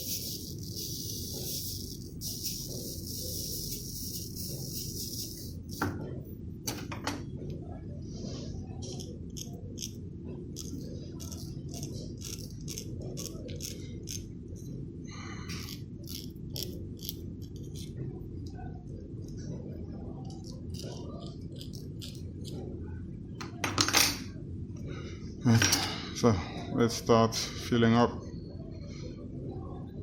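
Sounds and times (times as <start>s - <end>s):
small solder balls rattling: 0.0s - 5.9s, 10.6s - 14.2s, 15.5s - 18.0s, 20.3s - 22.6s
steady low hum: 0.0s - 30.0s.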